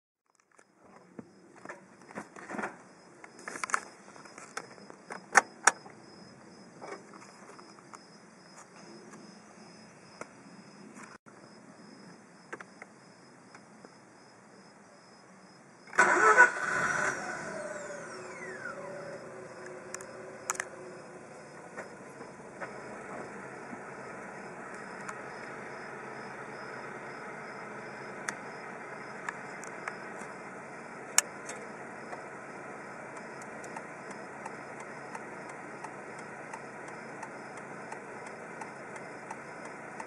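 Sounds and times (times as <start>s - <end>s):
rotary engine cranking and starting: 15.9s - 40.0s.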